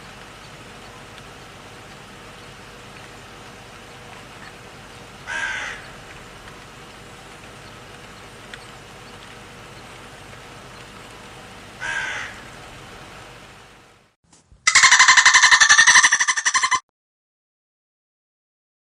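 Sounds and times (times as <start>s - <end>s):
animal calling: 4.0s - 7.0s, 11.8s - 12.7s, 14.7s - 16.8s.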